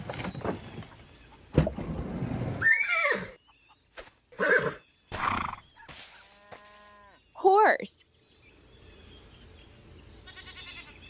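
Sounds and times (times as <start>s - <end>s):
horse whinny: 2.6s - 3.4s, 4.4s - 5.6s.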